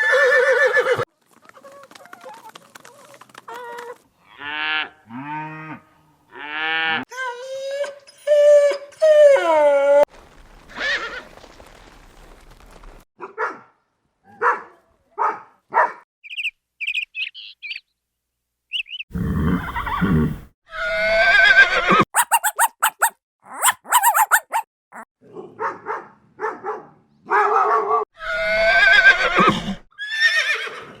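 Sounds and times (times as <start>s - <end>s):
animal yelps: 21.2s - 25.1s
high chirps: 22.2s - 24.7s.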